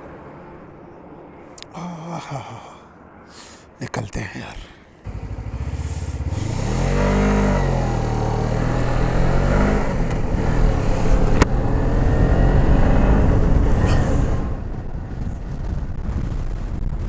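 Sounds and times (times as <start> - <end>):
motorcycle engine accelerating: 5.1 - 17.0.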